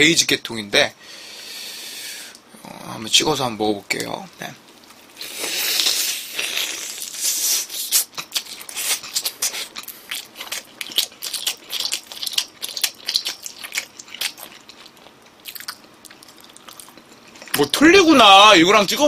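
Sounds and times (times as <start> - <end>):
crunchy chewing: 4.7 - 17.8.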